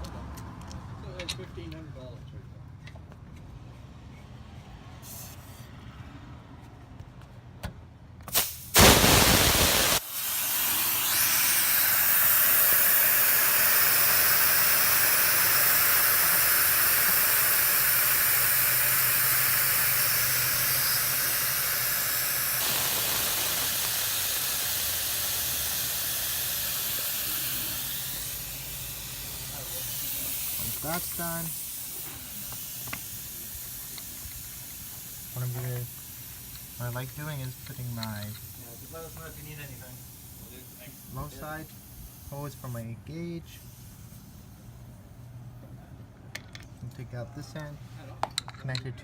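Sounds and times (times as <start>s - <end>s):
pressurised gas hissing from hoses: 5.0s - 5.7s, 8.2s - 45.3s.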